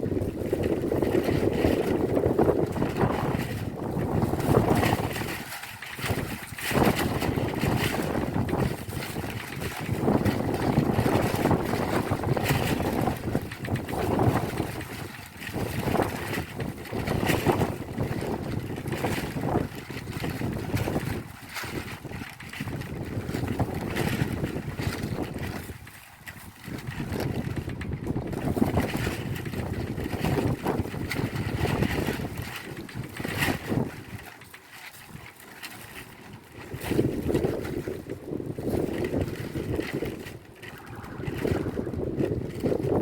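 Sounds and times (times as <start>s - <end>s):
heavy rain on roof tiles: 0.0s - 25.9s, 35.8s - 43.0s
strong wind gusting: 0.0s - 34.3s, 35.9s - 43.0s
wind buffeting microphone: 0.0s - 43.0s.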